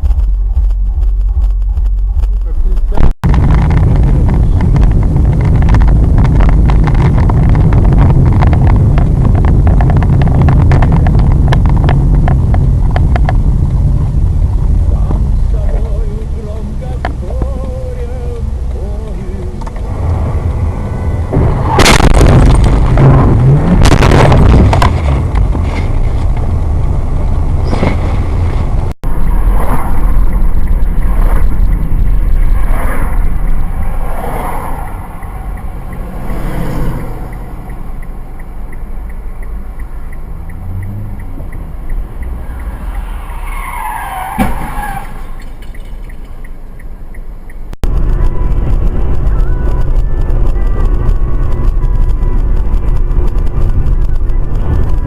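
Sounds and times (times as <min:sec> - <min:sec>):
loud sudden noises: 0:00.0 - 0:12.9, 0:19.8 - 0:26.3, 0:41.7 - 0:46.0
car road and engine noise: 0:00.0 - 0:55.0.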